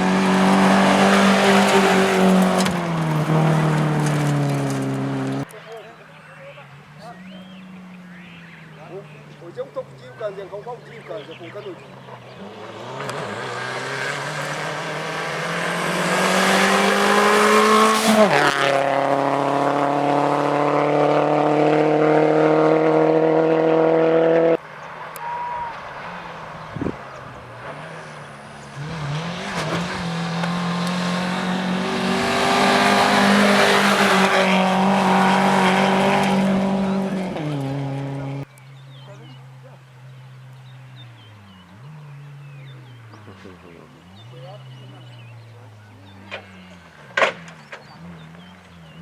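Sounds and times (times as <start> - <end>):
rally car passing at speed: 0.0 - 5.5, 11.8 - 38.5.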